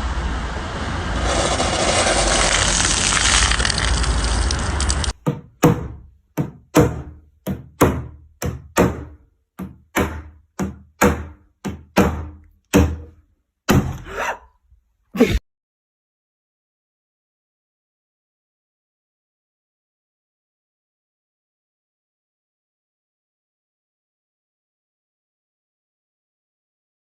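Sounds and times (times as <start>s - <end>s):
loud rush of noise: 0.0s - 5.2s
sharp knocks: 5.2s - 14.1s.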